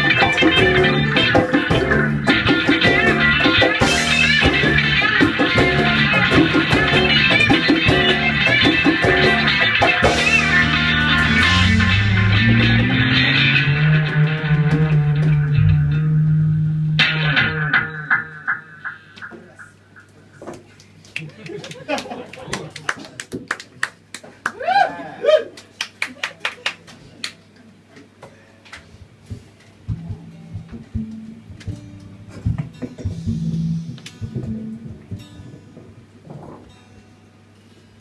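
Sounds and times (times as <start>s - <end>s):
live band with guitar and bass: 0.0s - 20.4s, 29.2s - 37.7s.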